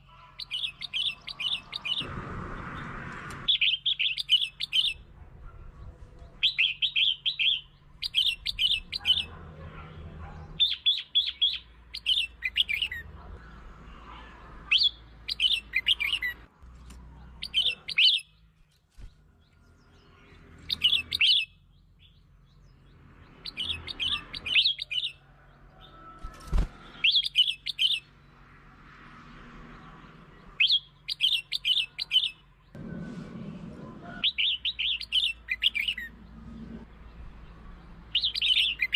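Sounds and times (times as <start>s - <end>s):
bulbul singing: 0.0s - 5.1s, 5.7s - 9.5s, 10.5s - 13.6s, 14.7s - 16.5s, 17.2s - 18.7s, 19.3s - 25.9s, 26.8s - 28.3s, 30.4s - 32.8s, 34.2s - 38.9s.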